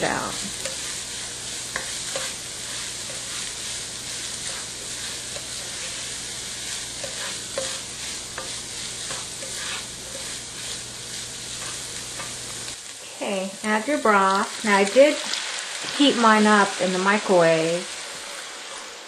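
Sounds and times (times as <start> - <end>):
food sizzling in a pan: 0.0 - 19.0
wooden spoon scraping and tapping: 1.7 - 3.6, 4.4 - 6.1, 7.0 - 10.8, 11.6 - 12.4.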